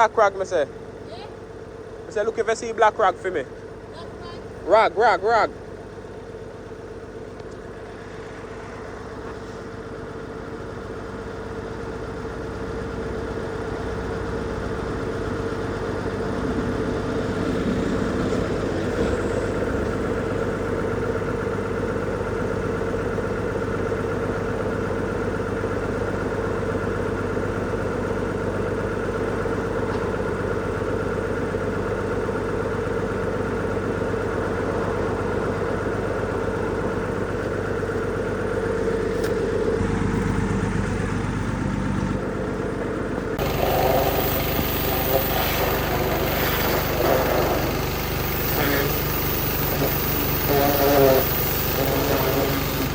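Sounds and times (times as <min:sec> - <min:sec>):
motor humming: 0:14.6 - 0:52.9.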